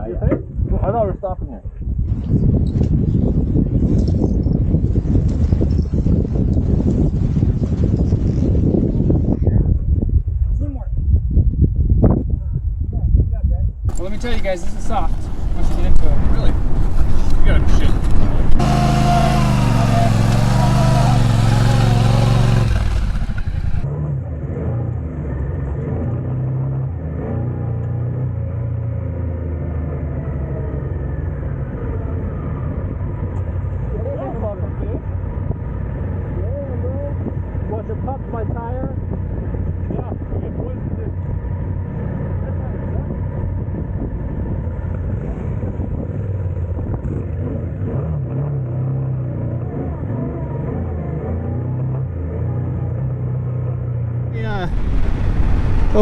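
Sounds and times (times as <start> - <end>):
wind noise rush: 1.8 - 12.9, 13.8 - 23.9, 54.4 - 56.0
motorcycle engine running: 13.9 - 23.9, 54.4 - 56.0.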